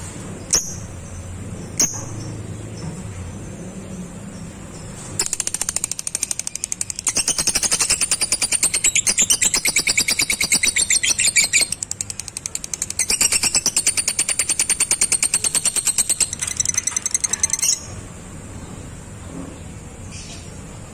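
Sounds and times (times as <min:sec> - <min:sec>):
lovebird chattering trill: 0:05.2 - 0:18.0.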